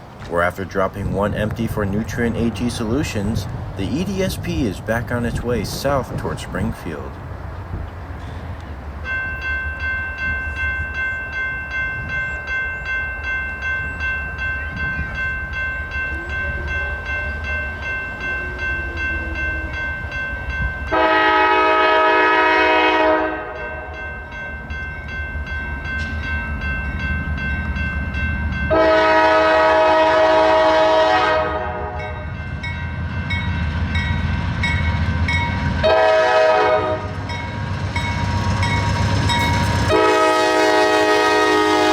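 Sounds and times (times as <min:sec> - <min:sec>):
crossing bell ringing: 0:00.0 - 0:07.2, 0:08.2 - 0:41.9
diesel locomotives rumbling: 0:00.0 - 0:41.9
train horn blasts: 0:20.8 - 0:24.1, 0:28.7 - 0:32.4, 0:35.8 - 0:37.4, 0:39.7 - 0:41.9.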